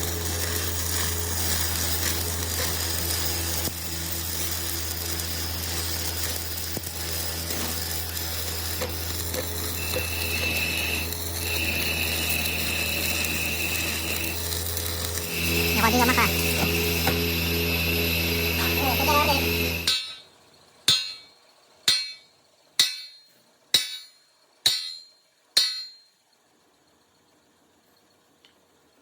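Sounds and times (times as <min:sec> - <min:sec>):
crackling noise: 0:00.0 - 0:19.9
high steady whine: 0:00.0 - 0:20.2
workshop machine humming: 0:00.0 - 0:20.2.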